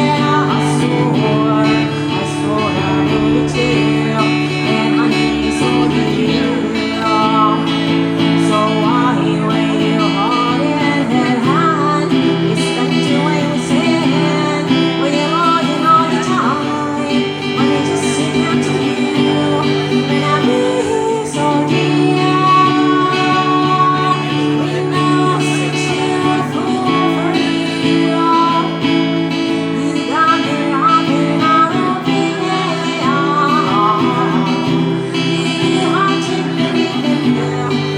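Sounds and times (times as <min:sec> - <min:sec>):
strummed acoustic guitar: 0:00.0 - 0:37.9
pitch-bending melody line: 0:00.8 - 0:08.4.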